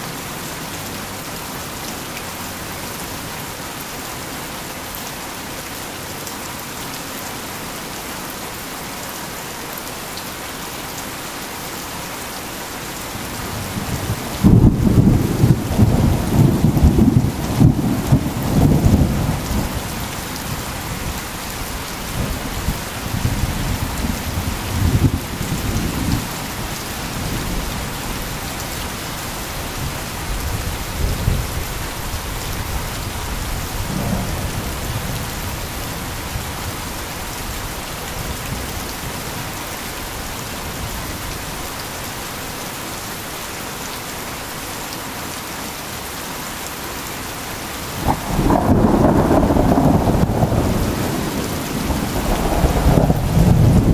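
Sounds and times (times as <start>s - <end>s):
heavy rain falling: 0.0s - 53.9s
thunder rumbling: 13.5s - 21.2s, 22.2s - 28.3s, 33.3s - 36.6s, 48.0s - 53.9s.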